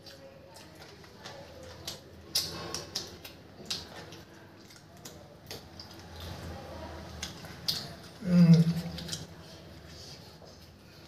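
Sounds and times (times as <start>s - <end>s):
person chewing food: 0.0s - 11.0s
wet mouth smacks and clicks: 1.8s - 6.4s, 7.1s - 9.3s.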